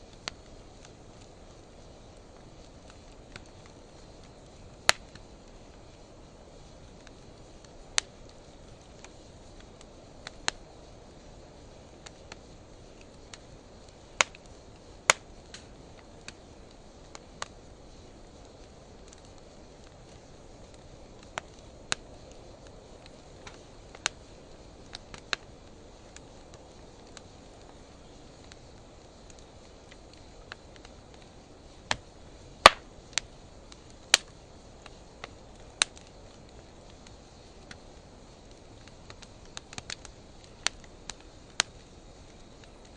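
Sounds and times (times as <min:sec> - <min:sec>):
fire hiss: 0:00.0 - 0:42.9
wood fire crackling: 0:00.0 - 0:42.9
faint ticks: 0:02.2 - 0:06.1, 0:31.9 - 0:42.9.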